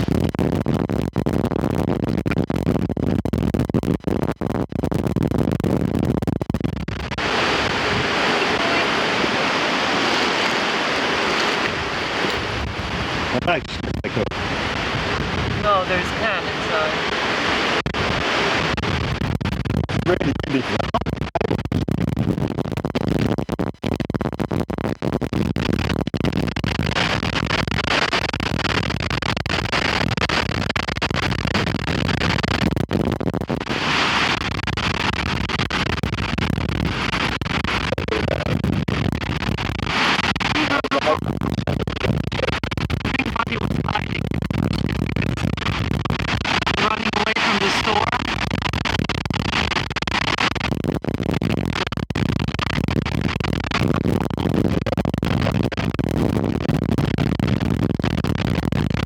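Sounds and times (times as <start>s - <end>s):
wind buffeting microphone: 7.2s - 19.0s.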